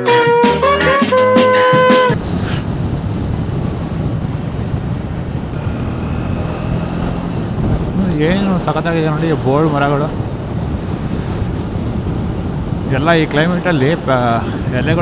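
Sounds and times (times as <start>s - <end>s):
background music: 0.0s - 2.2s
motorcycle running: 1.6s - 15.0s
wind rushing over microphone: 1.6s - 15.0s.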